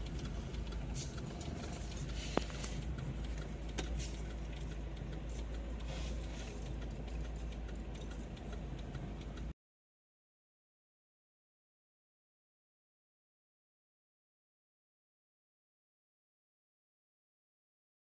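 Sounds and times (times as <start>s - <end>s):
faint ticks: 0.0s - 9.5s
vehicle engine and road noise: 0.0s - 9.6s.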